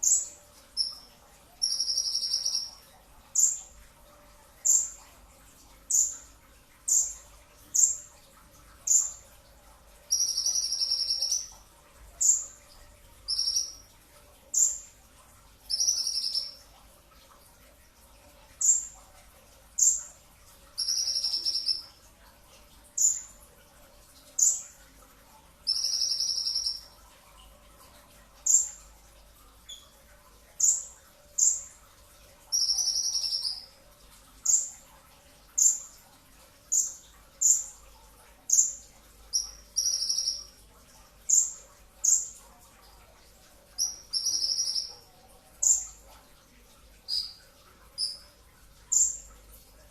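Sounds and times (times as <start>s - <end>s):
sunbird buzzy trill: 0.0s - 2.8s, 10.1s - 11.6s, 13.3s - 13.9s, 15.7s - 16.6s, 20.8s - 21.9s, 25.7s - 26.9s, 32.5s - 33.7s, 38.5s - 40.5s, 43.8s - 44.9s.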